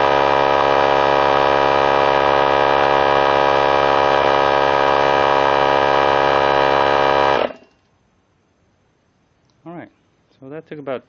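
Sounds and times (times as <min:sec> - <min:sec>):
air compressor running: 0:00.0 - 0:07.8.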